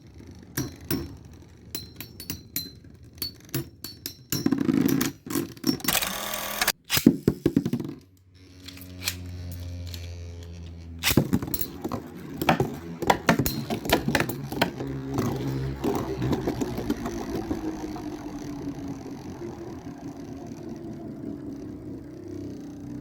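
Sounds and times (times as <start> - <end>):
spinning tops whirring: 0.0 - 23.0
spinning tops clashing: 11.0 - 17.3.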